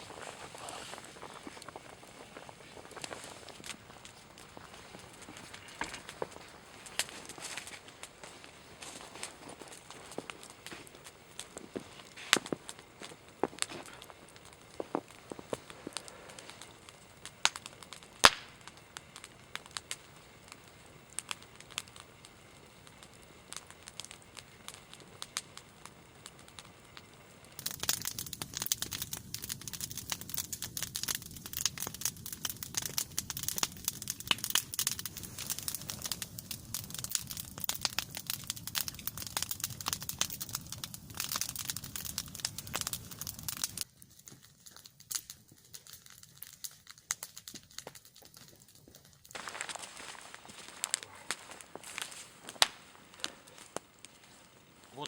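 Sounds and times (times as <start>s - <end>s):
log fire crackling and popping: 0.0s - 55.0s.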